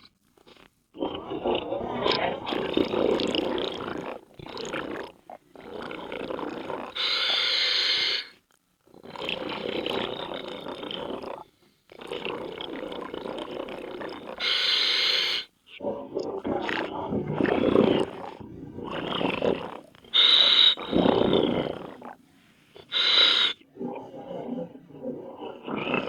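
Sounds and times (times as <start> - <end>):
bubbling exhalation underwater: 1.0 - 6.9, 9.0 - 14.6, 15.8 - 26.0
regulator hissing inhalations: 20.1 - 21.2, 22.3 - 23.6.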